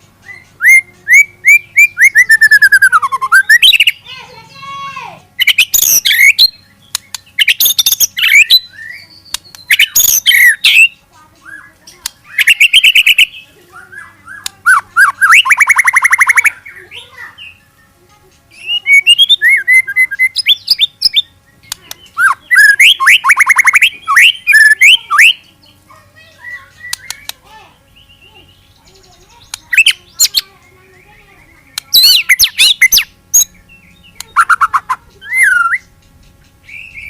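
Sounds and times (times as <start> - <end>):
songbird singing whistles and trills: 0.2 - 4.1, 5.4 - 37.0.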